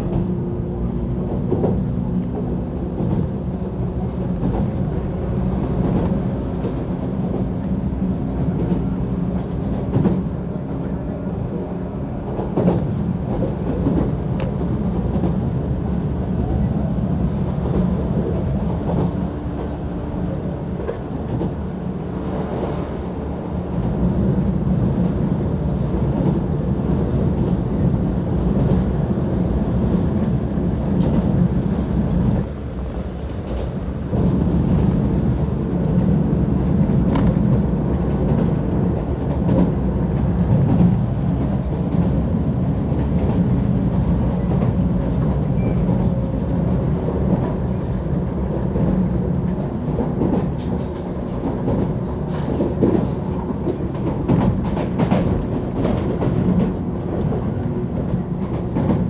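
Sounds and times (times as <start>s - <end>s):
train rumble: 0.0s - 59.0s.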